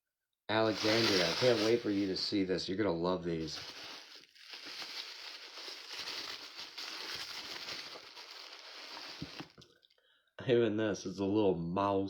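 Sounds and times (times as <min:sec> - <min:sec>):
packing wrap crinkling: 0:00.6 - 0:02.5, 0:03.3 - 0:09.6.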